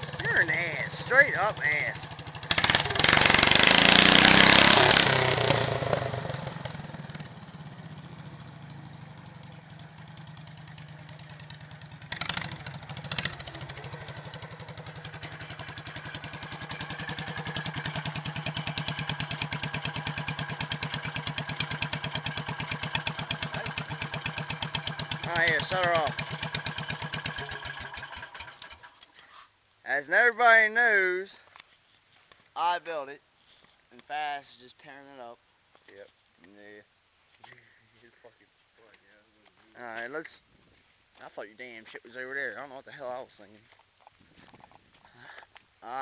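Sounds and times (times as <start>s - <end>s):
tractor engine revving: 0.0s - 29.1s.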